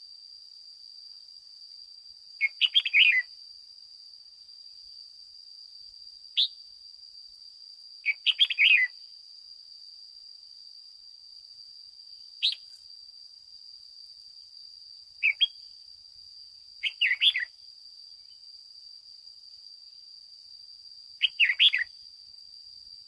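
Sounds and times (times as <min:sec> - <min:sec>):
bird chirping: 0:02.4 - 0:03.3, 0:08.0 - 0:09.0, 0:12.4 - 0:12.8, 0:15.2 - 0:15.8, 0:16.8 - 0:17.6, 0:21.2 - 0:22.0.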